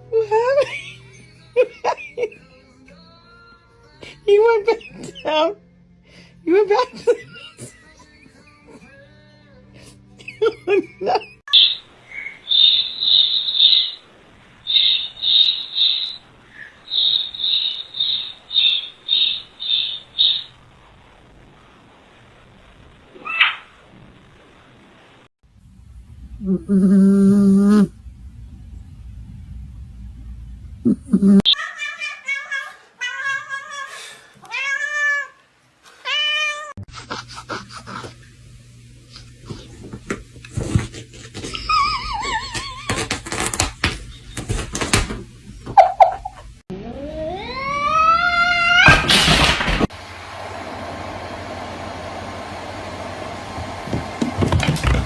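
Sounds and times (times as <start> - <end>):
high-pitched chirps: 11.5 - 14.0, 14.6 - 20.6
steady low hum: 23.9 - 31.5
cat meowing: 46.9 - 49.0.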